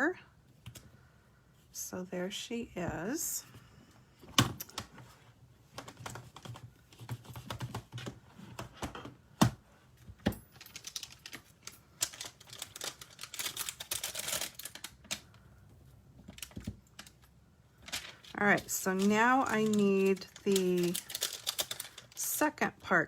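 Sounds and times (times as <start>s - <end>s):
paper rustling: 10.6s - 15.2s, 17.8s - 22.2s.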